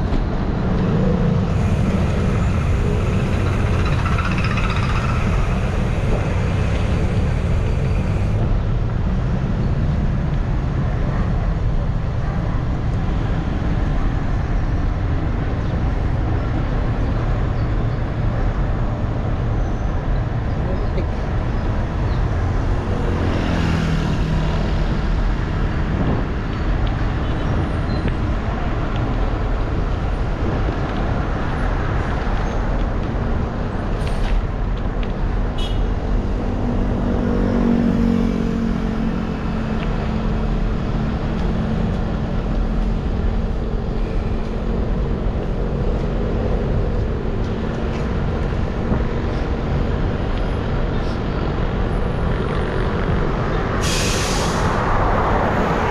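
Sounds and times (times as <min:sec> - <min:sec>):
traffic rumble and hiss: 0:00.0 - 0:55.9
vehicles passing: 0:00.0 - 0:55.9.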